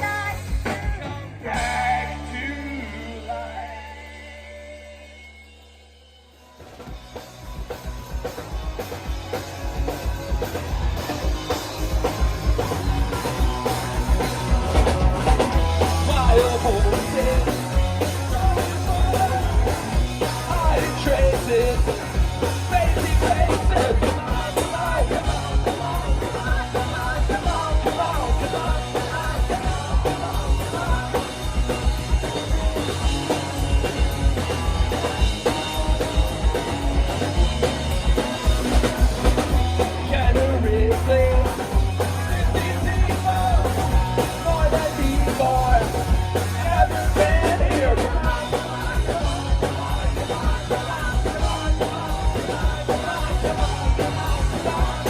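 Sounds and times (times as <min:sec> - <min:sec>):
drum kit beat: 0:00.0 - 0:03.8, 0:06.6 - 0:55.0
bass guitar: 0:00.0 - 0:55.0
electric guitars: 0:00.0 - 0:55.0.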